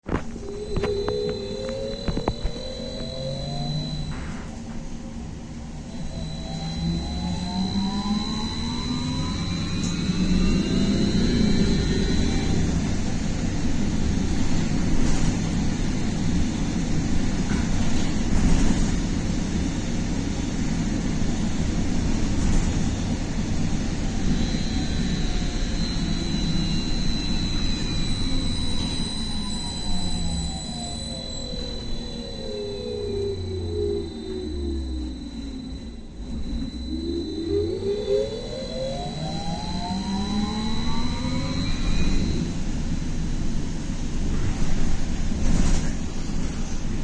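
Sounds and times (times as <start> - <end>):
trolleybus electric motor whine: 0.0 - 47.0
high steady tone: 0.2 - 4.6, 5.8 - 14.2, 23.4 - 42.6.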